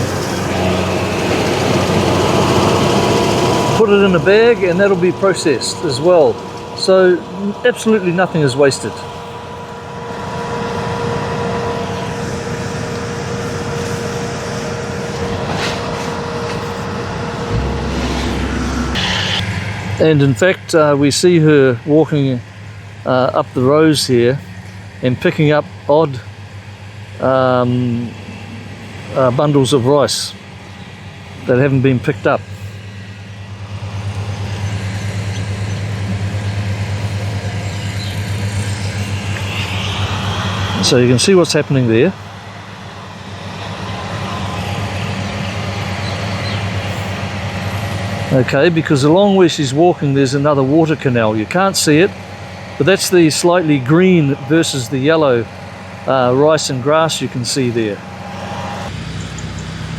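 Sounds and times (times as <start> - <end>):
engine droning: 0.0 - 59.9
deep low rumble: 17.3 - 19.5.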